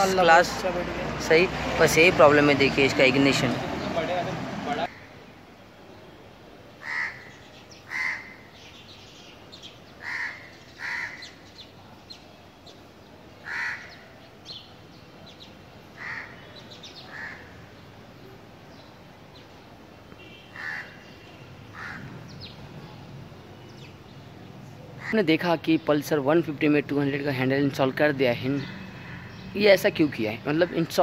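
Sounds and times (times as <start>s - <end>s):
harsh bird calls: 6.8s - 31.0s.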